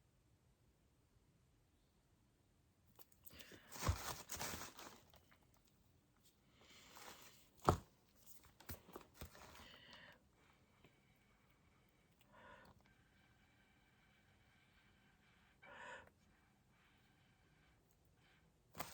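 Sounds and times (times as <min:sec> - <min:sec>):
rustling objects: 0:03.0 - 0:10.1.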